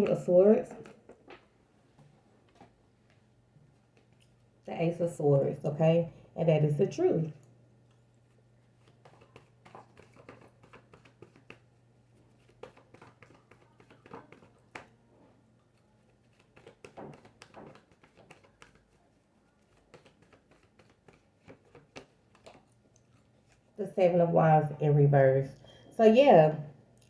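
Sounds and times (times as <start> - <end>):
low steady hum: 0.0 - 18.0, 18.6 - 27.0
cards tapping and rustling: 0.7 - 3.2, 8.7 - 23.7.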